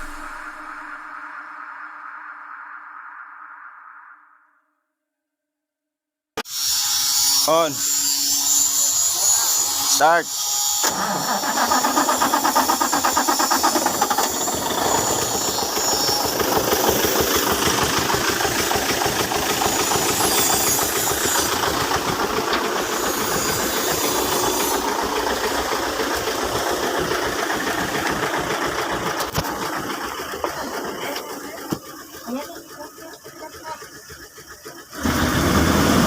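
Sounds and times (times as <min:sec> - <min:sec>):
diesel engine running: 0:11.4 - 0:36.0.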